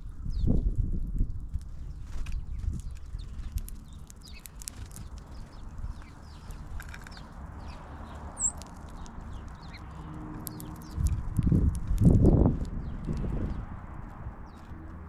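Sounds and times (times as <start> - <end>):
small birds chipping: 0.0 - 15.0
steady low rumble: 0.0 - 15.0.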